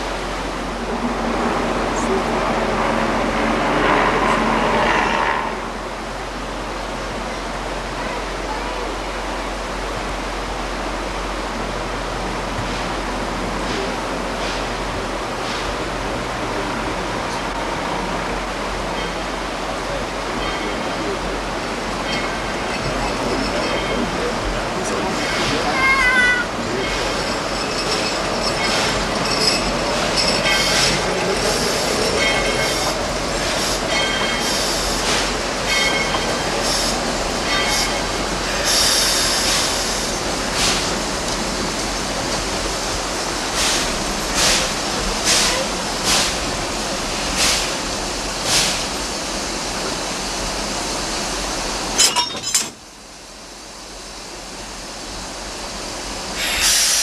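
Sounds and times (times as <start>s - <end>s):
train running noise: 0.0s - 57.0s
high thin wheel squeal: 35.7s - 39.5s.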